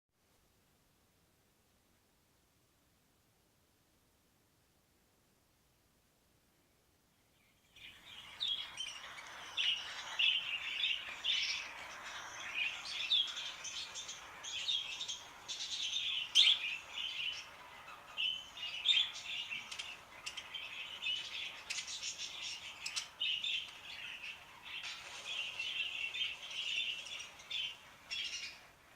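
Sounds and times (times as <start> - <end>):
budgerigars chattering: 8.1 - 28.6.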